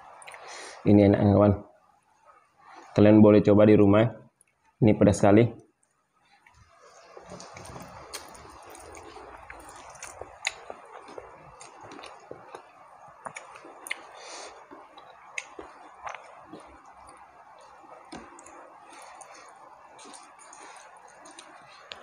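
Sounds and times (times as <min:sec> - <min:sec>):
faint background noise: 0:00.0 - 0:22.0
person chewing: 0:00.2 - 0:00.5, 0:06.4 - 0:22.0.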